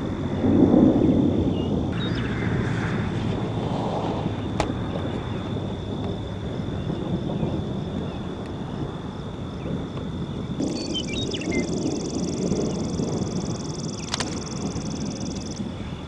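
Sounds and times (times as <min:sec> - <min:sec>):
steady low rumble: 0:00.0 - 0:16.0
high insect buzz: 0:09.1 - 0:15.9.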